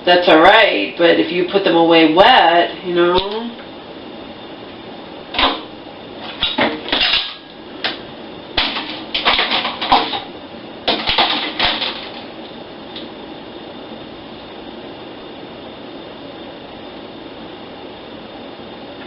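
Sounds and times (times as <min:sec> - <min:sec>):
dishes clattering and clinking: 0:06.5 - 0:07.4.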